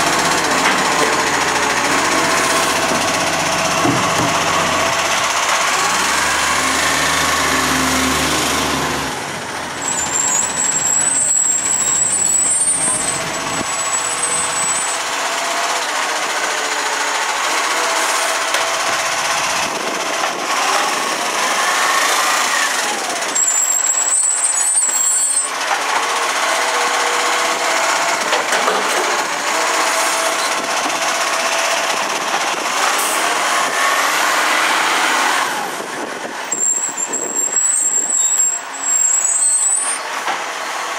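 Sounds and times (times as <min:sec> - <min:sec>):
garbage truck engine: 0:00.0 - 0:40.9
high squeals: 0:09.8 - 0:15.1, 0:23.3 - 0:25.6, 0:36.5 - 0:40.1.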